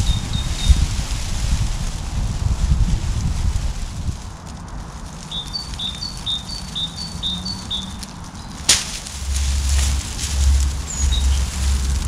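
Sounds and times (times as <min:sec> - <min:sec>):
small bird singing: 0:05.3 - 0:12.0.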